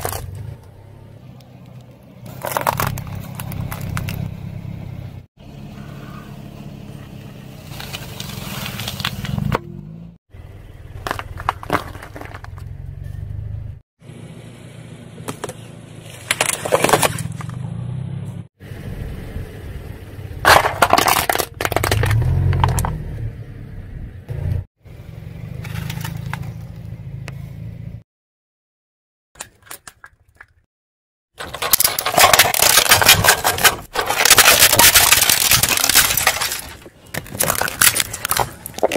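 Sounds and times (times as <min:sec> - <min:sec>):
plastic cracking and snapping: 0:31.4 - 0:38.9.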